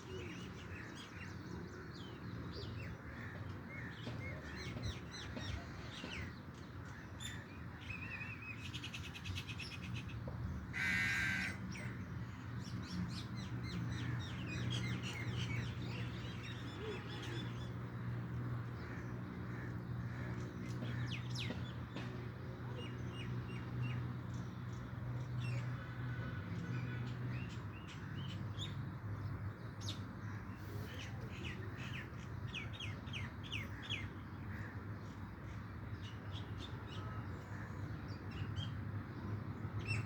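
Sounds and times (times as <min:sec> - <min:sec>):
loud harsh bird call: 0:10.8 - 0:11.6.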